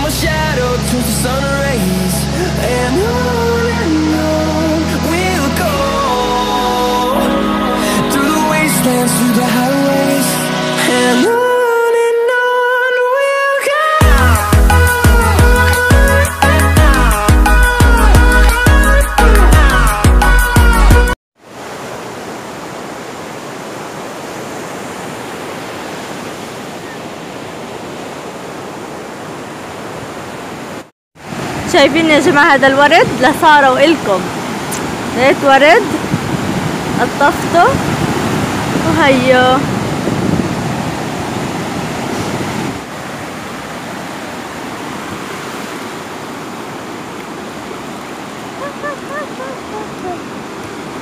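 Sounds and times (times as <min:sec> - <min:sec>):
sea surf breaking on shore: 0:21.4 - 0:51.0.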